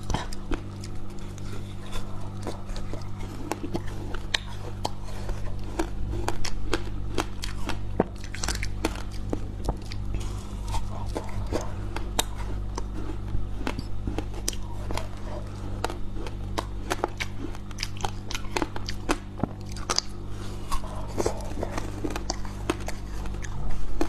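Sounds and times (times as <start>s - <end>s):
frost crunching while chewed: 0.0s - 24.0s
low hum: 0.0s - 24.0s.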